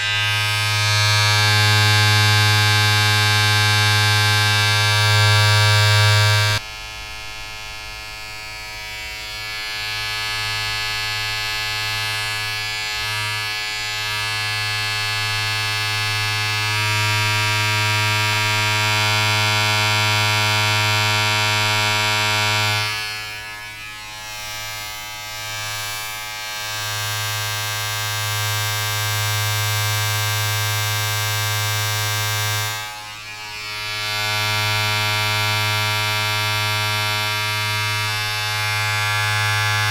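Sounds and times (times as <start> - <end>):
low electric buzz: 0.0 - 39.9.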